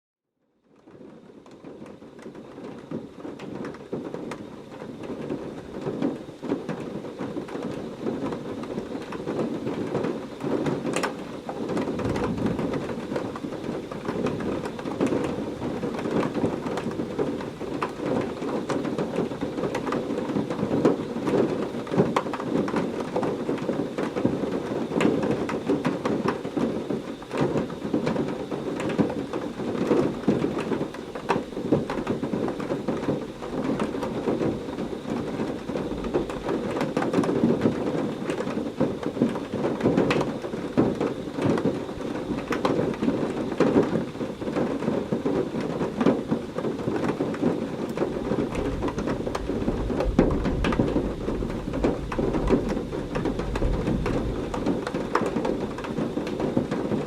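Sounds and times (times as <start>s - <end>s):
heavy rain: 1.4s - 57.0s
thunder rumble: 11.7s - 20.8s, 48.0s - 57.0s.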